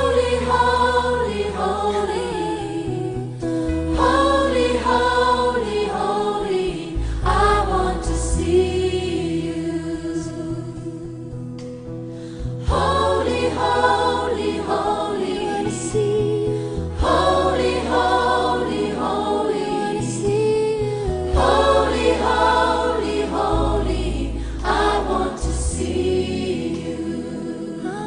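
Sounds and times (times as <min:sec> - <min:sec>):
gospel choir singing: 0:00.0 - 0:11.2, 0:12.6 - 0:28.0
sustained bass chords: 0:00.0 - 0:27.6.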